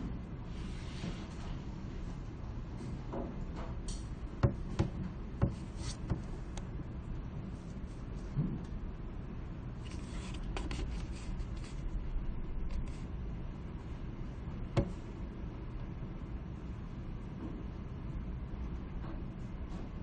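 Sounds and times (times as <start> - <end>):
low background hum: 0.0 - 20.0
faint rustling and scraping: 0.5 - 2.2, 9.8 - 12.0.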